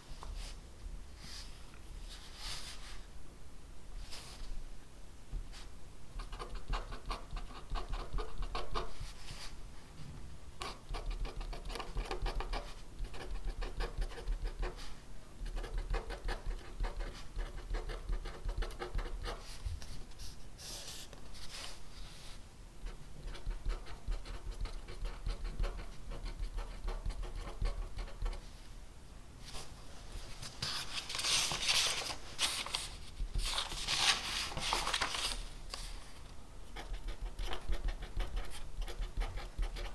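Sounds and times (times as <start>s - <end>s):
pen scratching on paper: 36.8s - 39.9s.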